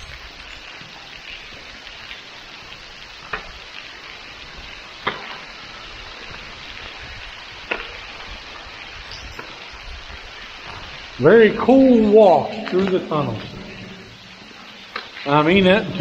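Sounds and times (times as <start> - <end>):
water dripping and trickling: 0.0 - 16.0
loud water drops: 10.7 - 16.0.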